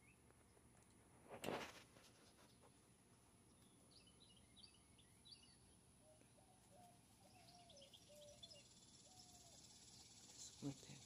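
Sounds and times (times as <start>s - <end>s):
faint high bird chirps: 3.5s - 11.0s
lower held bird notes: 3.5s - 11.0s.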